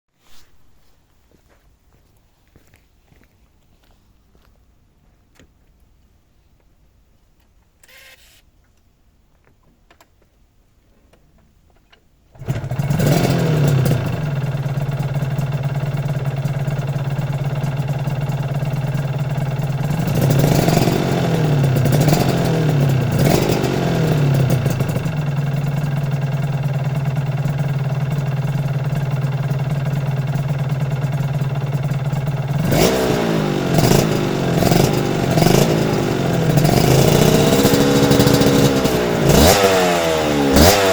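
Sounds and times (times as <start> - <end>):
throttle revs: 12.4 - 15.8, 19.8 - 25.2, 32.4 - 40.9
motorcycle engine idling: 12.4 - 40.9.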